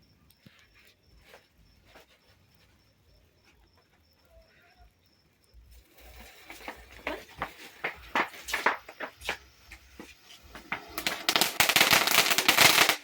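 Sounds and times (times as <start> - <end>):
firework sputtering and crackling: 5.5 - 13.0.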